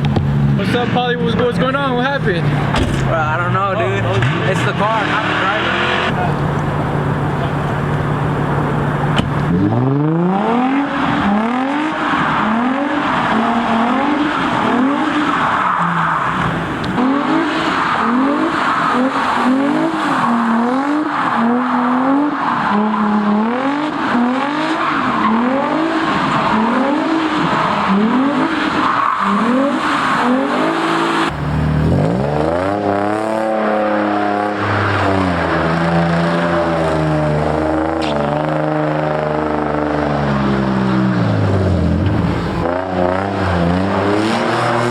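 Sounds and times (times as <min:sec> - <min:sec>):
car engine revving: 0:00.0 - 0:44.9
tyres spinning on wet pavement: 0:01.8 - 0:10.1, 0:10.9 - 0:32.6.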